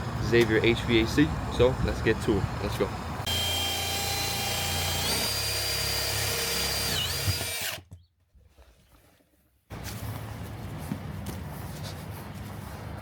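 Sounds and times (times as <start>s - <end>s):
power drill whining: 2.4s - 7.9s.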